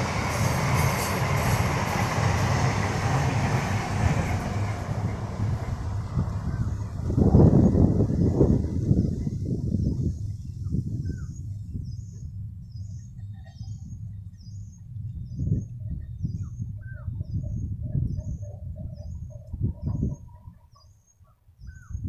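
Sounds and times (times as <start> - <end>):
train low rumble: 0.0 - 20.9
bird chirping: 10.4 - 22.0.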